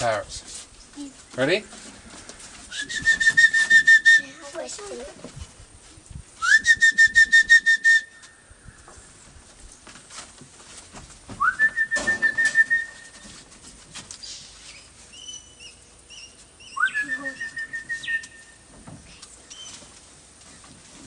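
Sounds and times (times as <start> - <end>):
long rising whistles: 2.7 - 4.4, 6.4 - 8.4, 11.4 - 13.2, 16.1 - 18.6.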